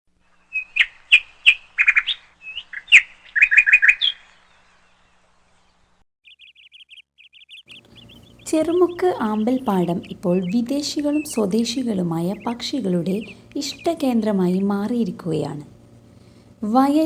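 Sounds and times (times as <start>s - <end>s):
birds chirping and trilling: 0.2s - 17.0s
bird rapid chattering: 0.5s - 4.2s, 6.2s - 16.0s.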